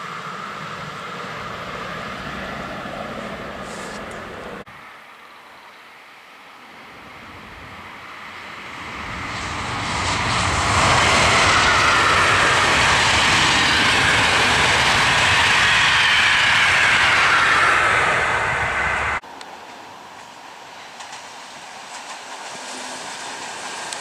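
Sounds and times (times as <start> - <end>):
passenger train passing at speed: 0.0 - 4.9, 6.5 - 24.0.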